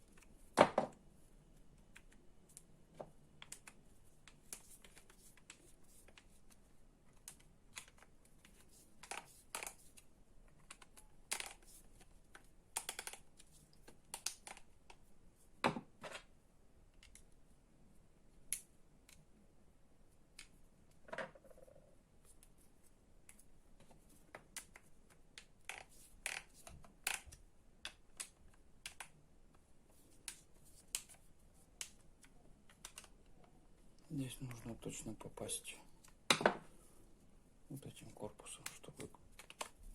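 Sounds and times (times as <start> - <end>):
plastic and metal parts clicking: 1.8 - 15.0, 23.2 - 29.2, 38.5 - 39.8.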